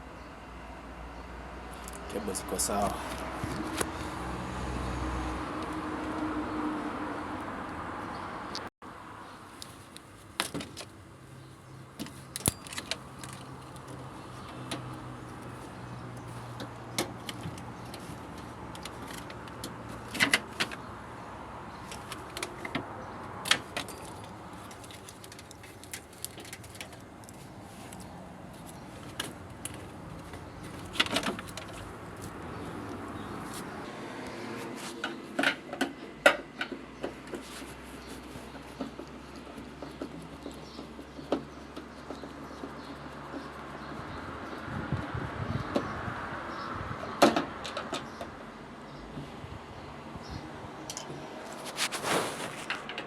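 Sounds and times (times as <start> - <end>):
metal tools clinking: 12.0 - 14.0, 23.5 - 28.0.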